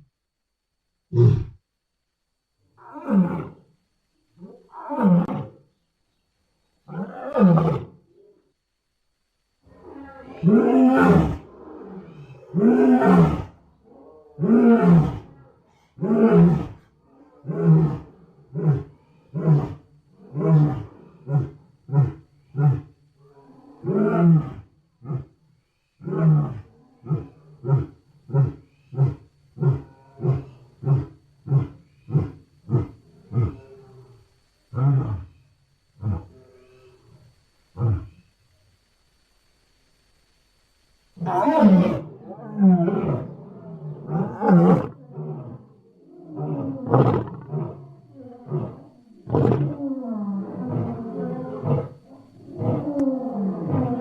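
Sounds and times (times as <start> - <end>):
lion roaring: 9.7 - 25.4, 41.2 - 54.0.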